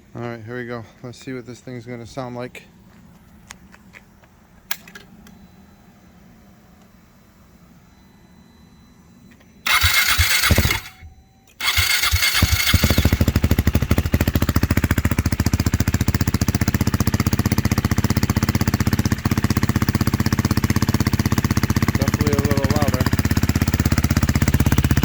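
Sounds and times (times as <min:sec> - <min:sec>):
motorcycle engine starting and idling: 0:09.3 - 0:25.0.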